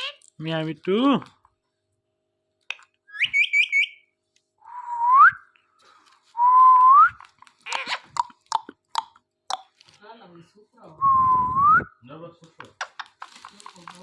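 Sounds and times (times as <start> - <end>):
parrot chirps: 0.0 - 0.3, 3.1 - 4.1, 7.6 - 9.1
parrot whistles: 3.1 - 4.1.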